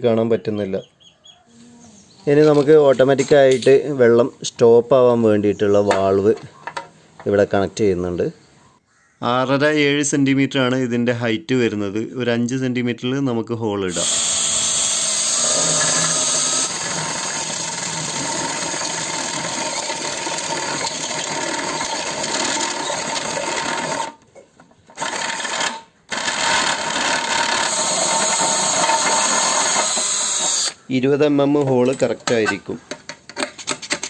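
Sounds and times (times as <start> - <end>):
electric drill running: 13.9 - 24.2, 25.0 - 30.8.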